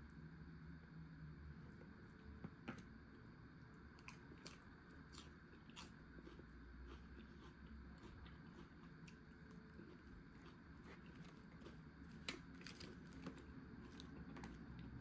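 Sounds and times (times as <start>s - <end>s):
chewing crisp salad: 3.8s - 15.0s.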